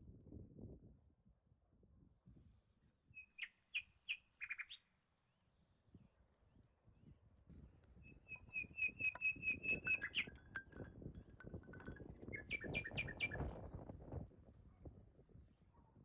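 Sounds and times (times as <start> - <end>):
bird calling high notes: 8.1 - 10.8
lower bird notes: 8.1 - 10.9, 11.6 - 13.4.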